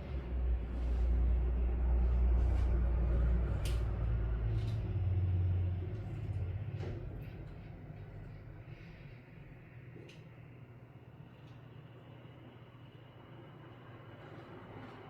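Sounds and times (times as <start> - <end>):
low rumble: 0.0 - 9.9.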